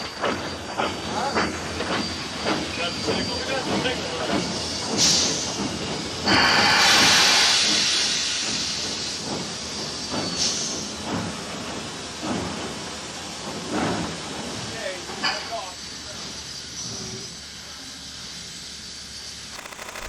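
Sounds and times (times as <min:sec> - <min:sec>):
steam hissing: 0:06.3 - 0:09.4.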